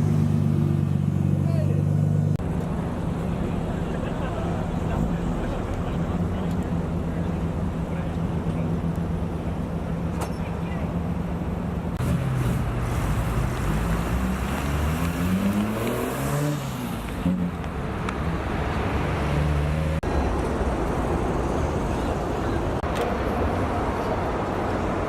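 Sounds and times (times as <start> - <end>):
car engines idling: 0.0 - 15.9, 20.0 - 25.0
traffic noise: 0.0 - 25.0
car engine revving: 12.0 - 21.8.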